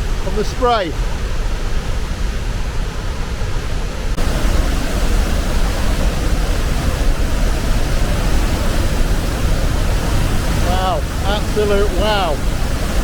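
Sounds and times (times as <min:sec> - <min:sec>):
waterfall pouring: 0:04.2 - 0:13.0.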